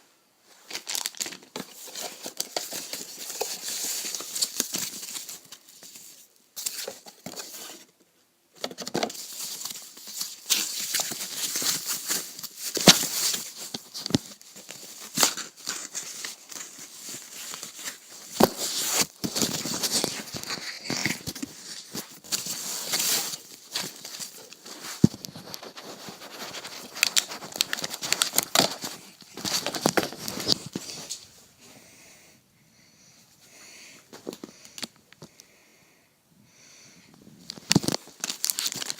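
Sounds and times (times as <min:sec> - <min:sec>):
packaging crinkling and rustling: 0:00.5 - 0:07.9, 0:08.6 - 0:31.4, 0:37.4 - 0:38.9
packaging tearing: 0:00.7 - 0:07.8, 0:09.1 - 0:30.6, 0:37.6 - 0:38.9.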